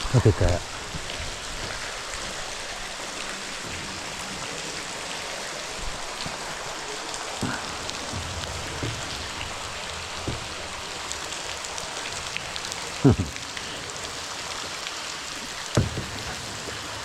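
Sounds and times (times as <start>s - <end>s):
water pouring and dripping: 0.0s - 17.0s
soft knocks: 7.4s - 12.5s, 15.7s - 16.9s.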